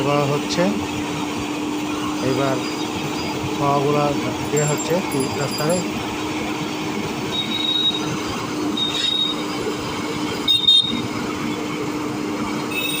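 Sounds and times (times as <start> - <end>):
road machinery humming: 0.0 - 13.0
high-pitched squeals: 2.0 - 6.3, 7.2 - 9.6.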